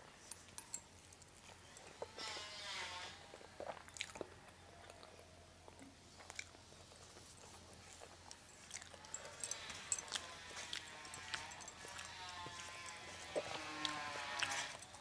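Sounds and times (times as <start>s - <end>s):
close-miked chewing: 3.3s - 15.0s.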